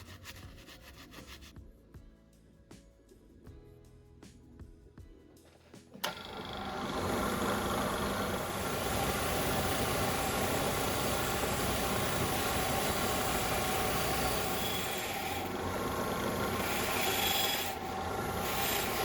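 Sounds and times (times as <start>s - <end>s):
electric power tool motor hum: 6.0s - 19.0s.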